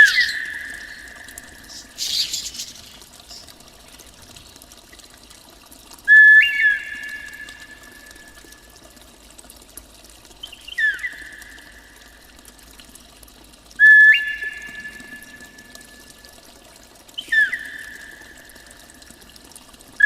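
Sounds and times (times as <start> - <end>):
faint watery hiss: 0.0 - 4.6.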